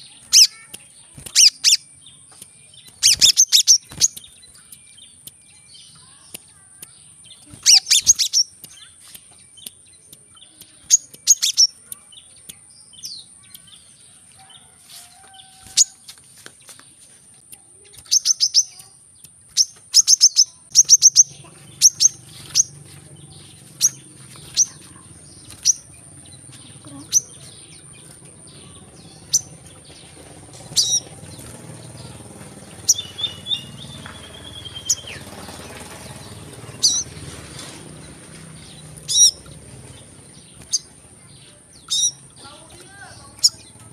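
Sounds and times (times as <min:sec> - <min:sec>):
sunbird high chirps: 0:00.0 - 0:43.9.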